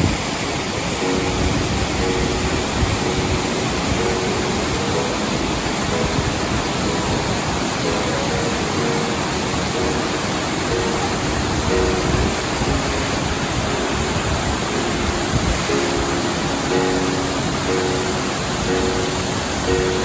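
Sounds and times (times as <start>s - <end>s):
waterfall rushing: 0.0s - 20.0s
soft music: 0.8s - 20.0s.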